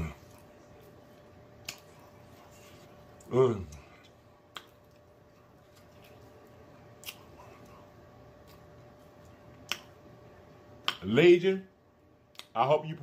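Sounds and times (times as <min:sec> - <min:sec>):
man chewing: 0:00.0 - 0:09.9
lip and tongue clicks: 0:04.0 - 0:05.1, 0:07.0 - 0:07.8.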